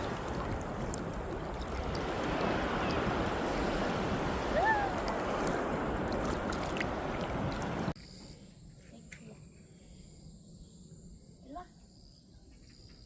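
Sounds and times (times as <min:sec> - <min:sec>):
sea waves: 0:00.0 - 0:08.0
wind: 0:00.0 - 0:13.0.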